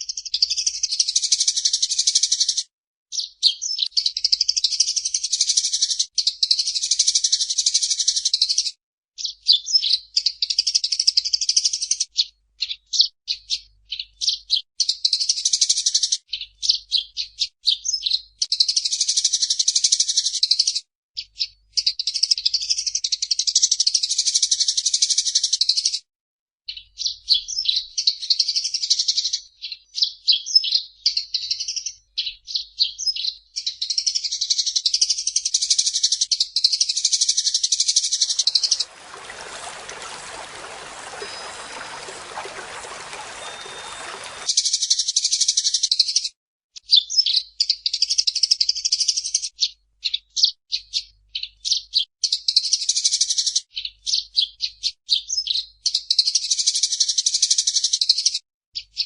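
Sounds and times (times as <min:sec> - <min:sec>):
sparrow chirping: 0:39.4 - 0:44.5.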